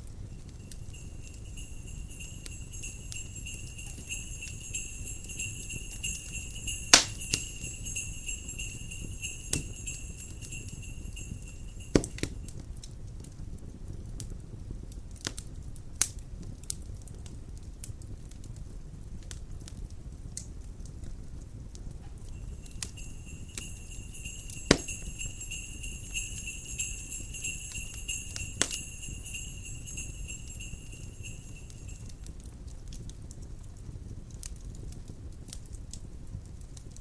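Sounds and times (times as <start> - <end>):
sleigh bells shaking: 0.0 - 12.6, 22.2 - 32.4
wood fire crackling: 0.0 - 37.0.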